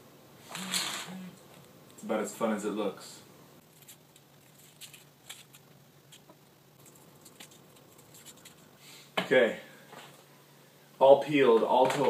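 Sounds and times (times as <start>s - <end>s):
foil wrappers crinkling: 3.6s - 8.7s.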